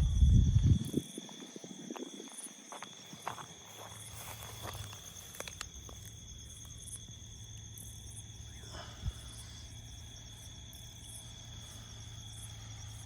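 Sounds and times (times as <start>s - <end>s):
crickets trilling: 0.0s - 13.0s
low steady hum: 4.2s - 13.0s.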